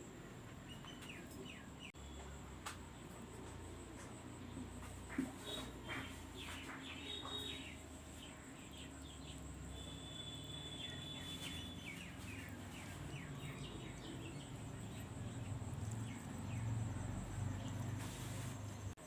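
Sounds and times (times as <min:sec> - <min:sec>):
birds chirping: 0:00.2 - 0:03.2, 0:03.9 - 0:19.0
held bird whistle: 0:09.8 - 0:12.2
steady low hum: 0:11.0 - 0:19.0.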